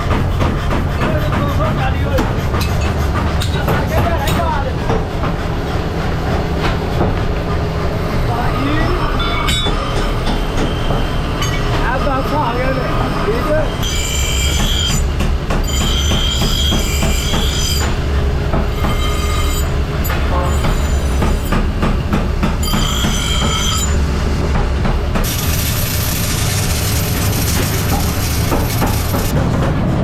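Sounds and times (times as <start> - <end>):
workshop machinery humming: 0.0 - 30.0
high-pitched metallic squeal: 8.4 - 11.7, 12.6 - 17.9, 18.8 - 21.5, 22.6 - 24.0.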